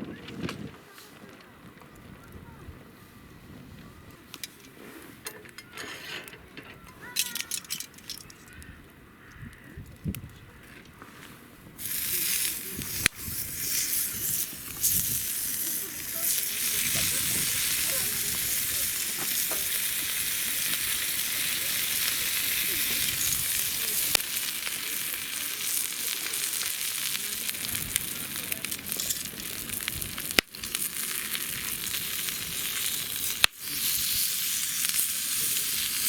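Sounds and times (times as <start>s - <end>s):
food sizzling in a pan: 11.8s - 36.0s.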